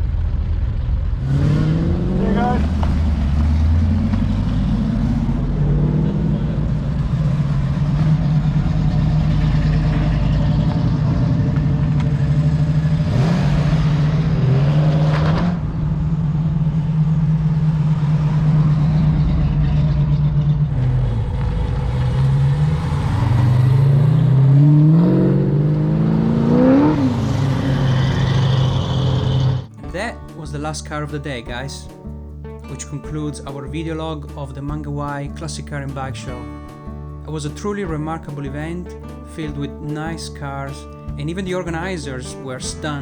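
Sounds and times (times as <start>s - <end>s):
car engine revving: 0.0s - 31.1s.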